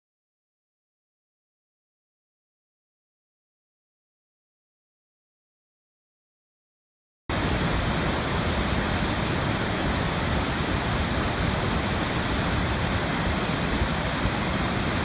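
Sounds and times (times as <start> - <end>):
steady rushing noise: 7.3 - 15.0.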